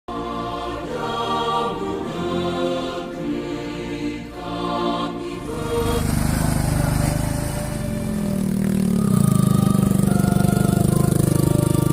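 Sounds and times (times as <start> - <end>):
background music melody: 0.1 - 11.9
vehicle engine running: 5.3 - 11.9.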